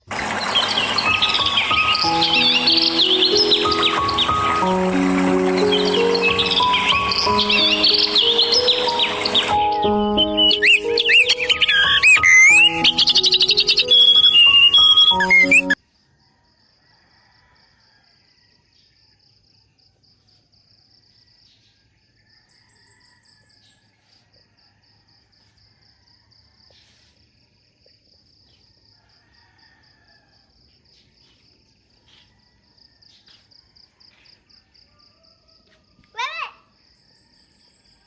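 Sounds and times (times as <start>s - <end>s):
crickets chirping: 0.0s - 15.8s.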